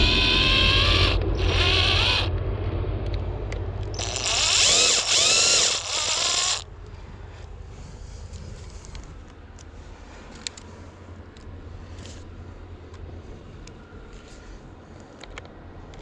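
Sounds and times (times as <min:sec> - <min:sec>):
power drill motor whine: 0:00.0 - 0:02.3, 0:04.0 - 0:06.7.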